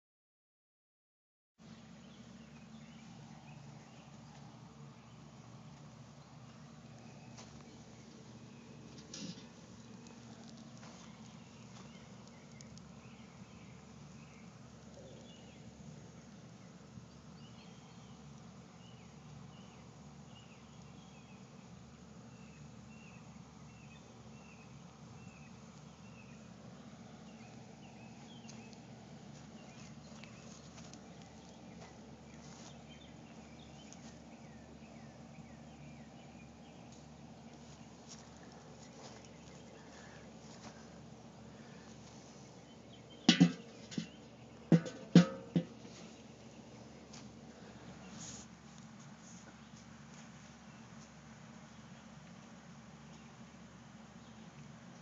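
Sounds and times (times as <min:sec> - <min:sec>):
steady low hum: 0:01.6 - 0:55.0
faint clicks and crackles: 0:08.9 - 0:15.4.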